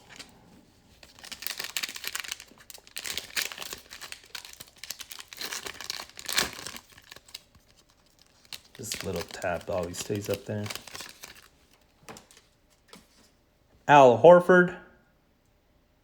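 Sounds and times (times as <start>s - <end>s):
plastic wrappers crinkling and tearing: 0.0s - 12.5s.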